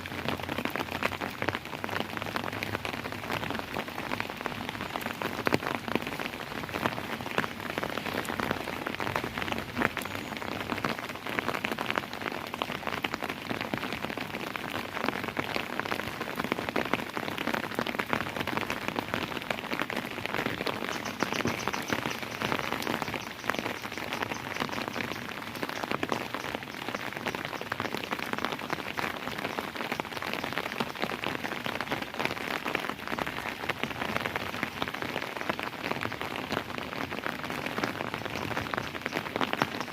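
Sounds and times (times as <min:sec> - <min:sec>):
raindrops striking a surface: 0:00.0 - 0:39.9
steady rain falling: 0:00.0 - 0:39.9.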